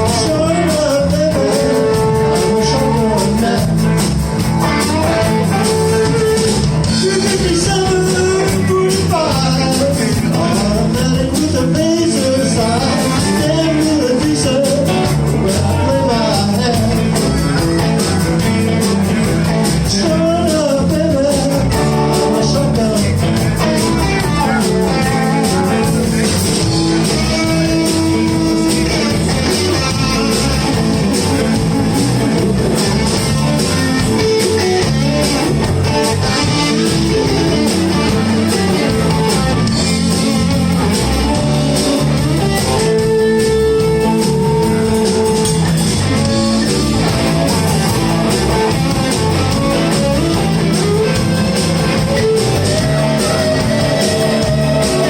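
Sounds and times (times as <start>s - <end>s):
blues band playing: 0.0s - 55.0s
electric guitar lead line: 0.0s - 55.0s.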